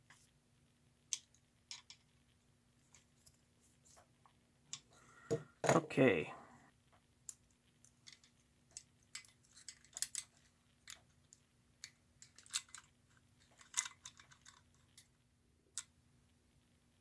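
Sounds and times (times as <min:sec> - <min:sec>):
faint steady hum: 0:00.0 - 0:17.0
toy parts clicking and tapping: 0:01.1 - 0:02.1, 0:07.2 - 0:16.0.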